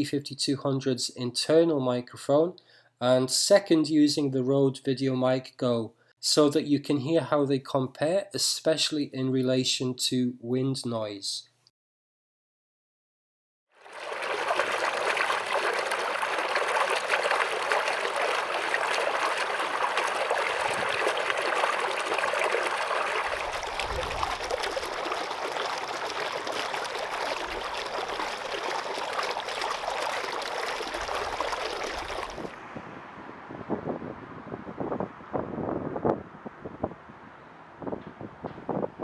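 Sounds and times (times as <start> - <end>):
stream water flowing: 13.8 - 32.6
wind buffeting microphone: 20.2 - 21.2, 23.2 - 25.1, 31.0 - 39.0.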